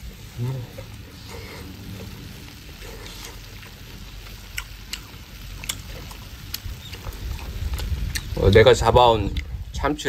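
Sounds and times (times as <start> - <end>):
man chewing: 0.5 - 8.3
wet mouth clicks: 4.5 - 8.3.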